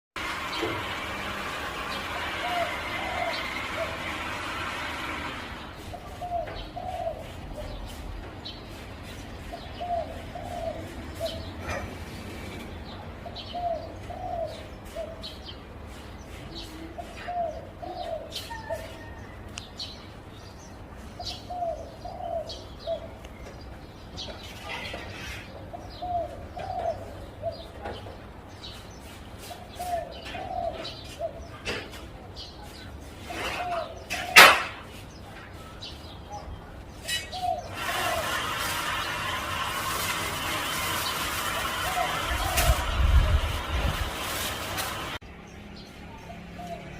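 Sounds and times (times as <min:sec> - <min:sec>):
dove cooing: 0:02.1 - 0:04.9, 0:05.8 - 0:08.0, 0:09.5 - 0:12.1, 0:13.2 - 0:15.4, 0:16.6 - 0:19.3, 0:21.3 - 0:23.2, 0:25.5 - 0:27.8, 0:29.5 - 0:31.9, 0:37.1 - 0:39.1, 0:40.9 - 0:43.8.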